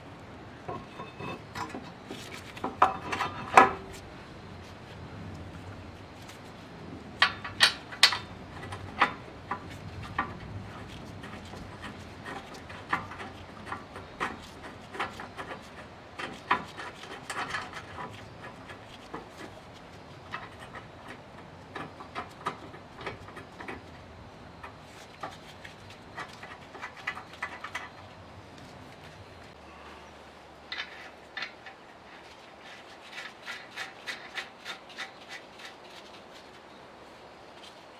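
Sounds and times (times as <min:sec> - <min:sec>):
sharp clicks and knocks: 0:00.7 - 0:04.0, 0:07.2 - 0:28.2.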